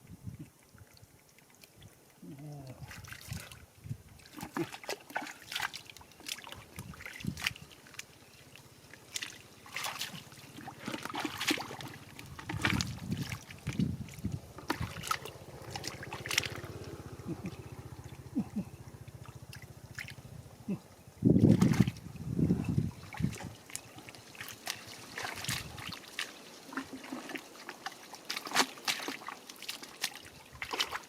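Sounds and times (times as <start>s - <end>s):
water splashing and sloshing: 0.3s - 31.0s.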